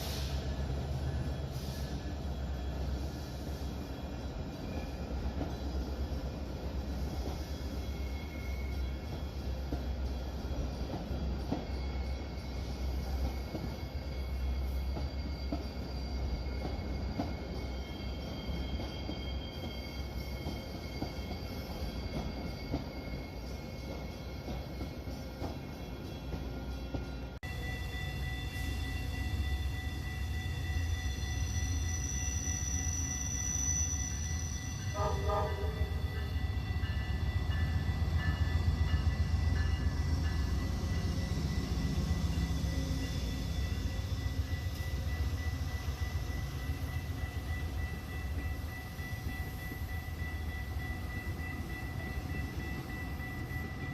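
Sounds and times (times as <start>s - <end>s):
train rumbling on rails: 0.0s - 53.9s
high wheel squeal: 27.5s - 36.5s
train horn toots: 34.8s - 36.3s.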